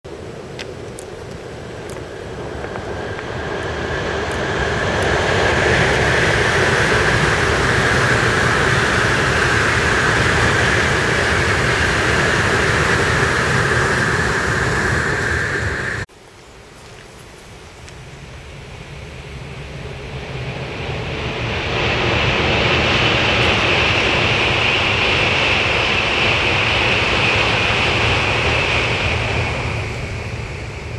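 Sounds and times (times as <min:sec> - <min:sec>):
train rumbling over bridge: 0:00.0 - 0:16.1, 0:18.0 - 0:30.9.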